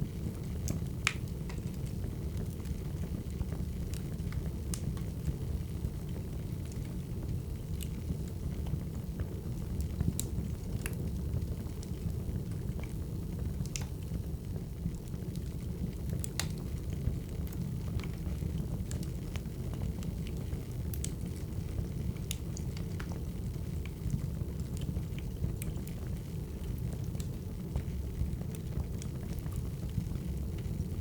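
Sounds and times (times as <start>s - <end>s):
wood fire crackling: 0.0s - 31.0s
sharp pops and snaps: 1.0s - 1.6s, 13.6s - 14.0s, 16.2s - 16.7s.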